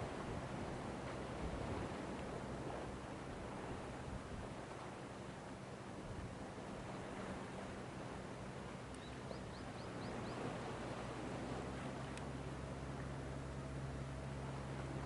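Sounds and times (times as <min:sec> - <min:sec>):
surf: 0:00.0 - 0:15.0
wind: 0:00.0 - 0:15.0
low hum: 0:06.1 - 0:15.0
bird chirping: 0:09.0 - 0:10.4.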